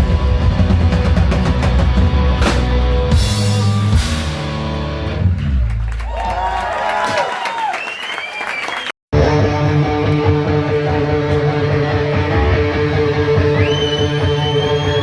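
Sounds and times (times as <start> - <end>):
hard rock band playing live: 0.0 - 5.6, 9.2 - 15.0.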